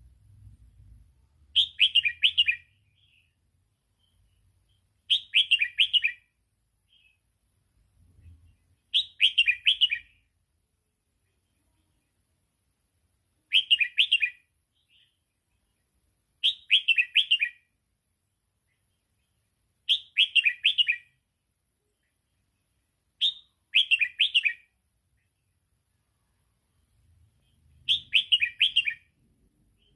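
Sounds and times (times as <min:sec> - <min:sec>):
bulbul singing: 0:01.5 - 0:07.2, 0:08.4 - 0:10.3, 0:13.5 - 0:15.2, 0:16.4 - 0:17.8, 0:18.7 - 0:21.2, 0:23.2 - 0:25.5, 0:27.4 - 0:29.9.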